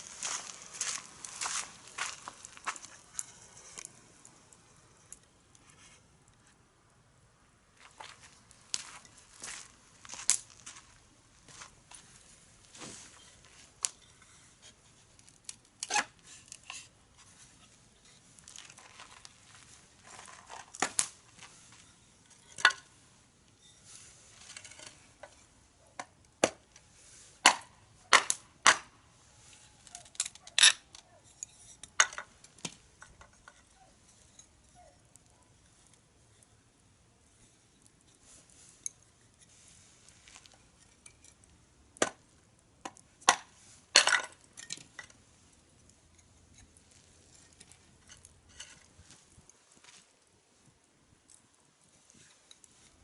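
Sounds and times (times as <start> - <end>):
firewood crackling: 0.0 - 53.0
sharp pops of fire: 20.7 - 21.3, 27.4 - 29.0.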